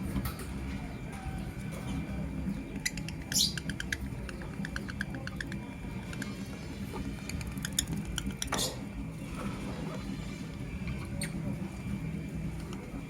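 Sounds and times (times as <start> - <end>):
steady low hum: 0.0 - 13.0
bird chirps and clicks: 2.7 - 6.4.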